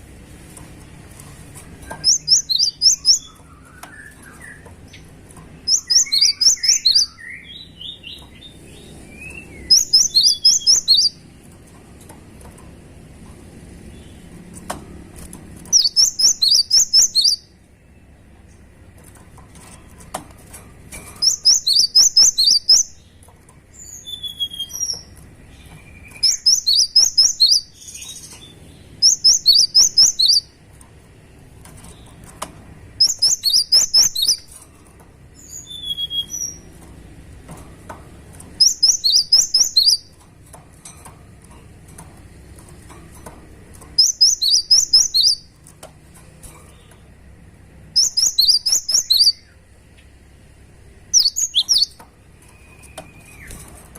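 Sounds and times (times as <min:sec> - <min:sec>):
bird song rapid high notes: 0:01.9 - 0:11.2, 0:15.7 - 0:18.2, 0:21.1 - 0:30.6, 0:33.0 - 0:34.6, 0:38.6 - 0:40.2, 0:44.0 - 0:45.6, 0:47.9 - 0:49.6, 0:51.1 - 0:53.6.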